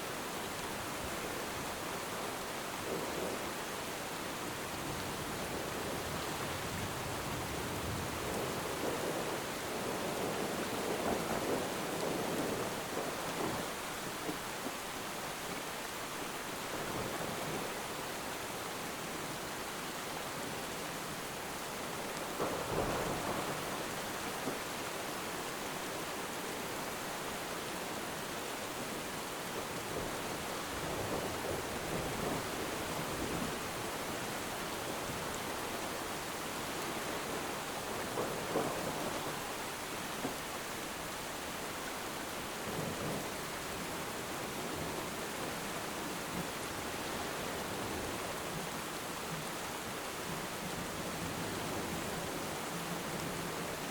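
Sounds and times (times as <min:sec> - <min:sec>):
steady rain: 0:00.0 - 0:53.9
thunder rumbling: 0:04.6 - 0:14.5, 0:22.0 - 0:25.1, 0:28.6 - 0:40.4.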